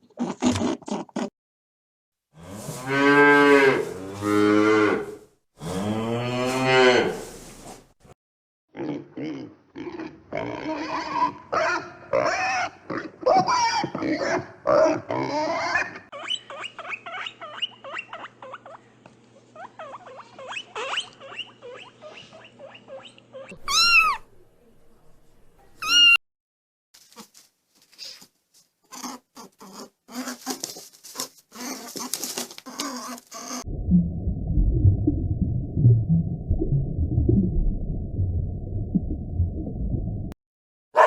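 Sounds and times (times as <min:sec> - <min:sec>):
cat meowing: 0:23.5 - 0:24.2.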